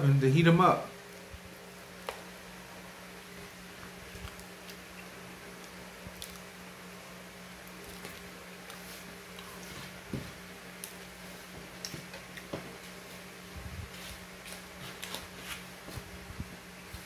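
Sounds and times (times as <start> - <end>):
low electrical hum: 0.0 - 17.0
chewing with mouth smacks: 4.1 - 6.5.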